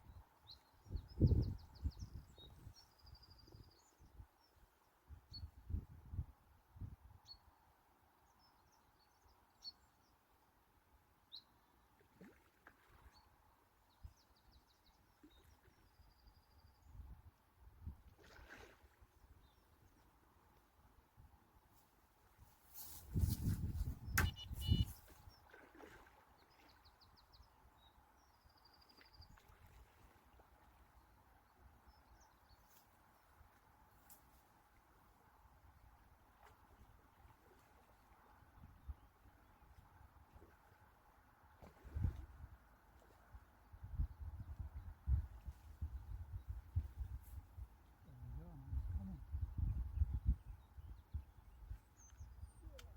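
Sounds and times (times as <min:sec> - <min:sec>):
faint birdsong chirps and trill: 0:00.0 - 0:06.2, 0:06.8 - 0:17.5, 0:19.1 - 0:21.3, 0:23.8 - 0:36.2, 0:43.0 - 0:52.9
bird trill: 0:24.0 - 0:25.1
faint small-bird chirps: 0:24.0 - 0:25.4.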